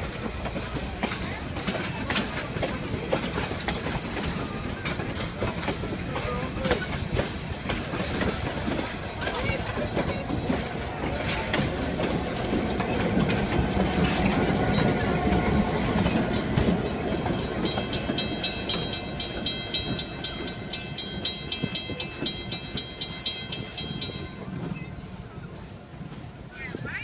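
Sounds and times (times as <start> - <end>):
diesel train rumbling past: 0.0 - 27.0
railroad crossing bell ringing: 14.7 - 25.4.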